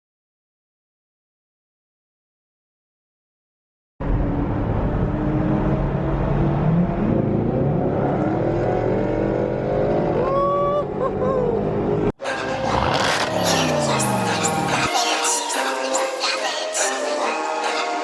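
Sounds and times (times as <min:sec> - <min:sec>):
car engine accelerating: 0:04.0 - 0:10.4, 0:11.4 - 0:16.1.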